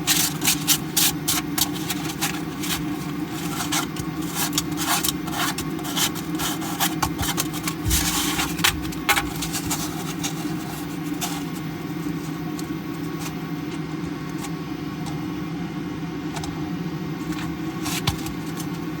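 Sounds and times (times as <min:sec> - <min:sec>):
low machine hum: 0:00.0 - 0:19.0
plastic cards clattering: 0:00.1 - 0:13.4.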